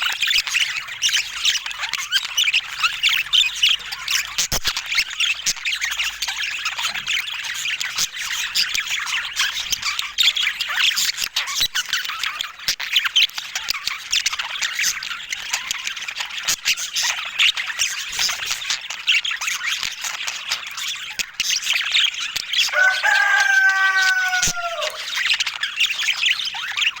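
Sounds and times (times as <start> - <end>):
budgerigars chattering: 0.0 - 27.0
drawn-out bird call: 22.7 - 25.2.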